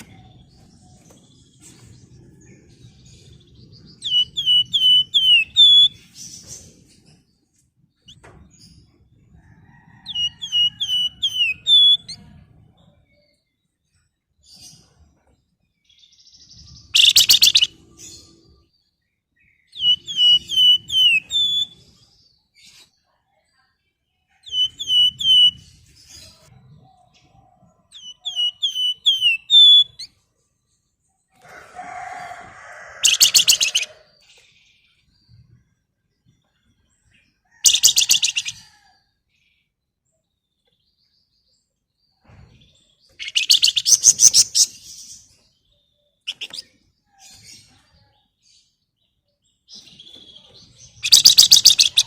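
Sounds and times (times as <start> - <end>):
songbird whistling downward notes: 19.8 - 21.8
bird harsh rapid chatter: 33.0 - 33.9, 43.2 - 44.8, 51.0 - 52.0.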